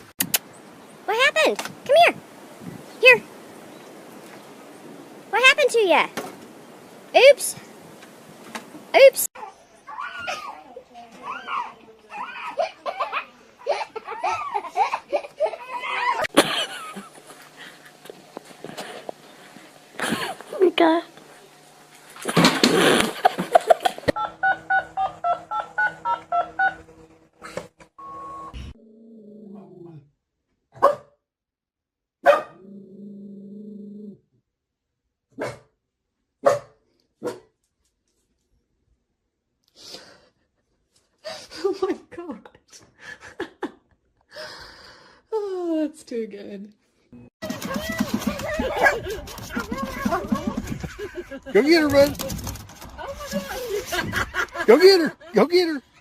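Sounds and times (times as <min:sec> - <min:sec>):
person laughing: 0:12.6 - 0:19.0, 0:20.0 - 0:20.6, 0:22.6 - 0:26.9, 0:47.4 - 0:52.4, 0:53.0 - 0:55.6
dog barking: 0:30.8 - 0:31.1, 0:32.2 - 0:32.6, 0:35.4 - 0:35.7, 0:36.4 - 0:37.5, 0:48.6 - 0:50.1.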